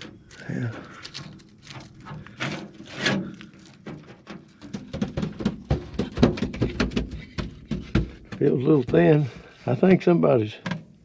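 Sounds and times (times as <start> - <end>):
taps and knocks on truck body: 3.8 - 9.3.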